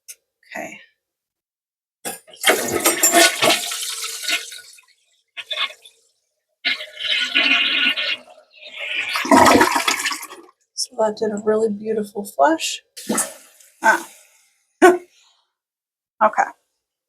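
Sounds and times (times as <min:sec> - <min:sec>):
toilet flushing: 0:02.1 - 0:06.0, 0:06.6 - 0:10.5, 0:13.0 - 0:14.2.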